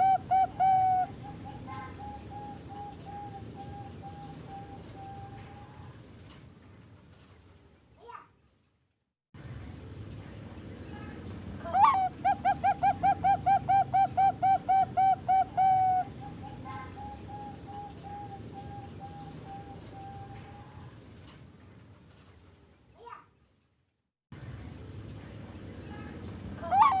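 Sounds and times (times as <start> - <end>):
dove cooing: 0.0 - 5.8, 11.6 - 20.6
low steady hum: 0.0 - 7.9, 9.4 - 23.6, 24.4 - 27.0.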